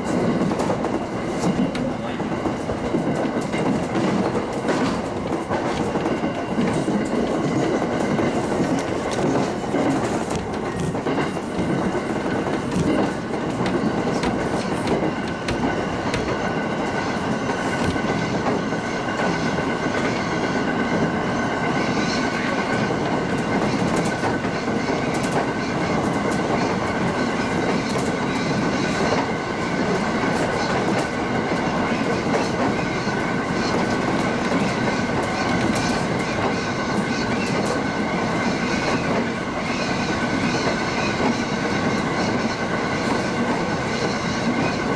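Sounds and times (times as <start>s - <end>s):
train wheels rumbling on rail: 0.0s - 44.9s.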